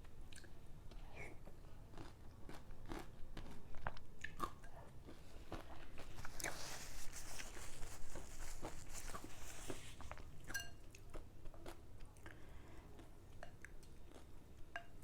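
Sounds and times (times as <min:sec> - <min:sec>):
crunchy bites and chewing: 0:01.9 - 0:06.6.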